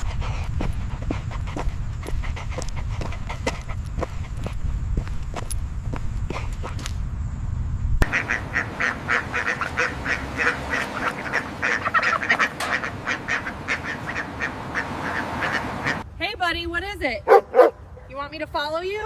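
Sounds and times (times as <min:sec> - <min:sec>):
ducks calling: 0:08.0 - 0:16.0.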